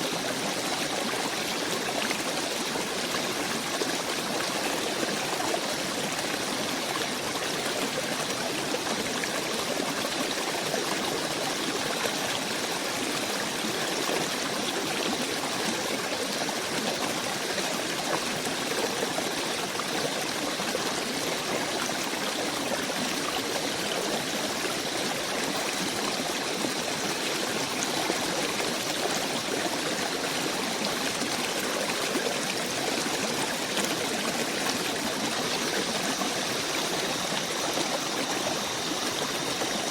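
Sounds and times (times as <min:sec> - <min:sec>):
flowing stream rushing: 0:17.4 - 0:39.9.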